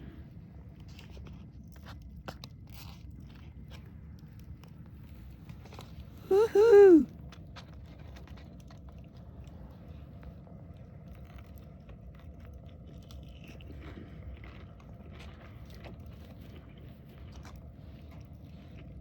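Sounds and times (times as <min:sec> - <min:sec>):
person chewing crunchy food: 0:12.0 - 0:19.0.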